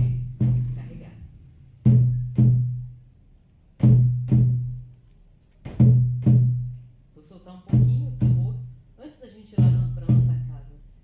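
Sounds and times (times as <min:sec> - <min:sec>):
frame drum double beats: 0:00.0 - 0:03.0, 0:03.8 - 0:04.9, 0:05.6 - 0:06.9, 0:07.7 - 0:08.9, 0:09.5 - 0:10.8.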